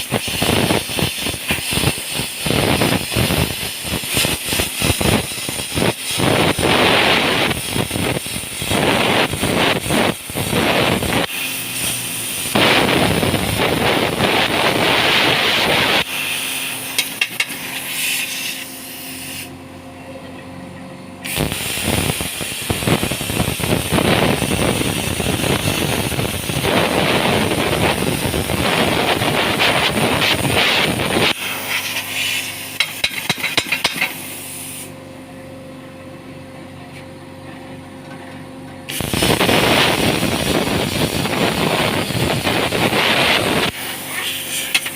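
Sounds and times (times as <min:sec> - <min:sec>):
sharp clicks and knocks: 0:17.0 - 0:17.6, 0:32.8 - 0:34.2.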